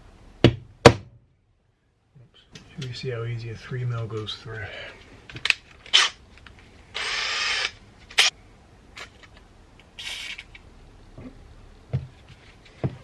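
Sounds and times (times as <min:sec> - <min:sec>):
cordless drill on steel: 0:07.0 - 0:08.3.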